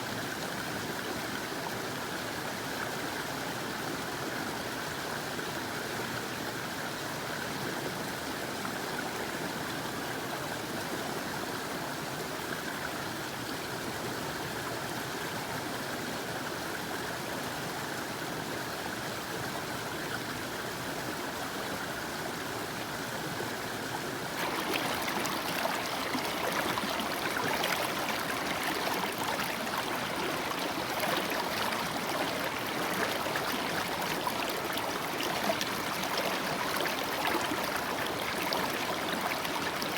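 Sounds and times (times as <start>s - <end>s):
water rushing over waterfall: 24.4s - 39.9s.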